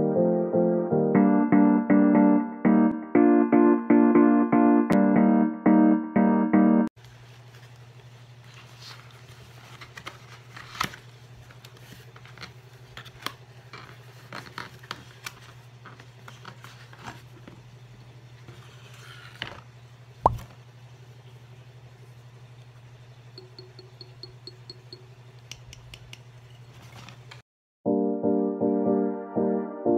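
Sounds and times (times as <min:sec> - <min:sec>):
cardboard and plastic packaging crinkling: 0:07.1 - 0:17.4.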